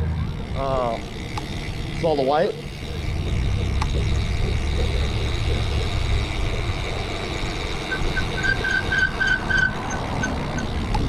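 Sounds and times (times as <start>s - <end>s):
wind and road rumble: 0.0s - 11.0s
short high squeaks: 7.9s - 10.7s.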